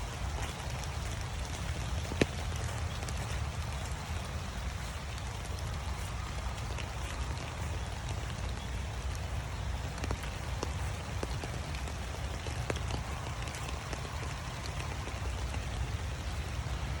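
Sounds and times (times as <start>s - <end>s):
raindrops ticking close by: 0.0s - 17.0s
steady rain falling: 0.0s - 17.0s.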